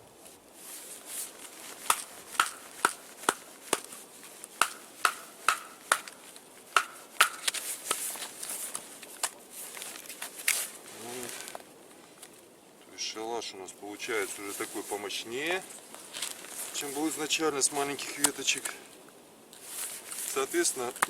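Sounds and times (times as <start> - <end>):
wooden baton knocking knife spine: 1.9 - 3.8, 4.6 - 6.2.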